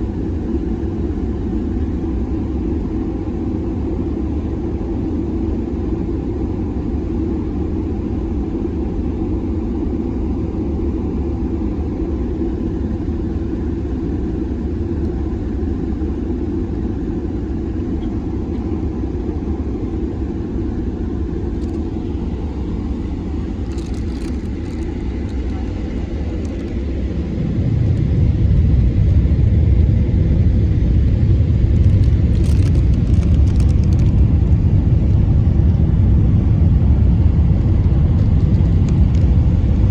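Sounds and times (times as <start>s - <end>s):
aircraft cabin engine rumble: 0.0s - 39.9s
faint rattles: 23.5s - 26.9s.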